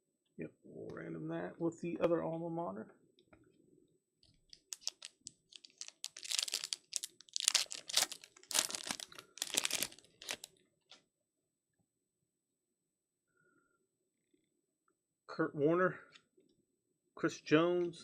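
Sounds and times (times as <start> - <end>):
foil wrapper tearing and crinkling: 4.6 - 10.5.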